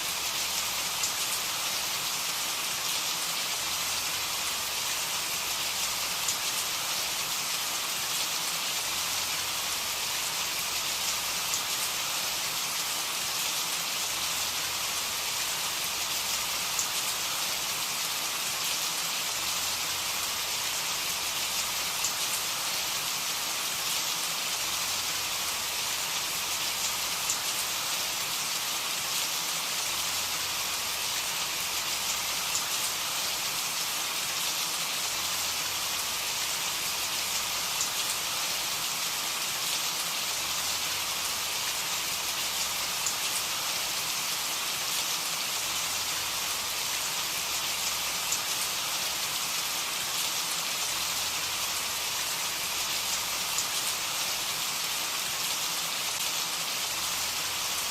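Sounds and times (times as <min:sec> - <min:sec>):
steady rain hiss: 0:00.0 - 0:57.9
faint raindrop ticks: 0:42.6 - 0:43.4.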